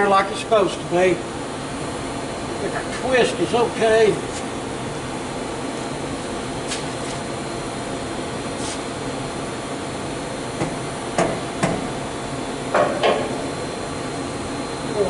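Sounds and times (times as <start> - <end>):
steady shop hiss: 0.0 - 5.7, 8.5 - 9.4
metallic knocks on exhaust pipe: 10.6 - 11.9, 12.7 - 13.4.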